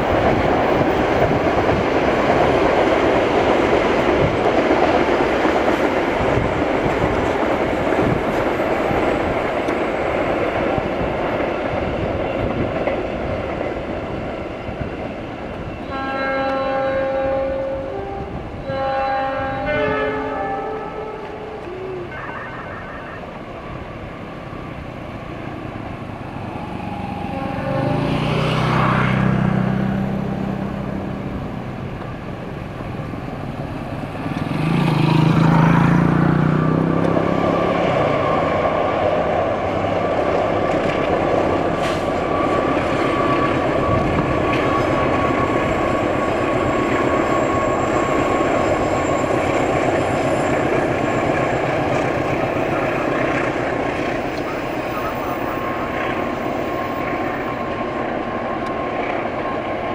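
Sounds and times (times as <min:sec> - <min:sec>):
train wheels rumbling on rails: 0:00.0 - 0:59.9
train horn blasts: 0:15.7 - 0:23.5, 0:27.2 - 0:29.1.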